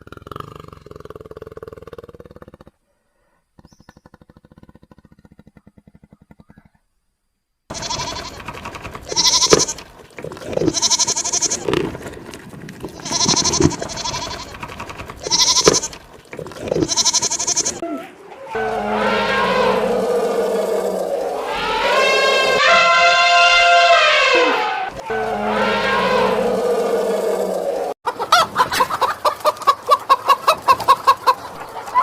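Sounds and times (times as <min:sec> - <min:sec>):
loud animal calls: 0:07.7 - 0:12.2, 0:12.8 - 0:28.4.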